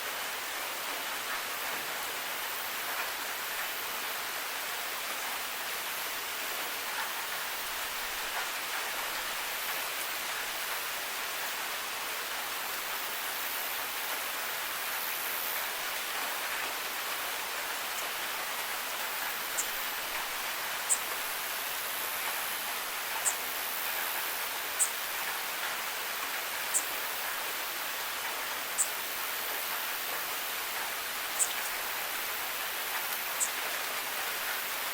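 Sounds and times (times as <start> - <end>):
steady rain hiss: 0.0 - 34.9
sharp high ticks: 30.8 - 31.8.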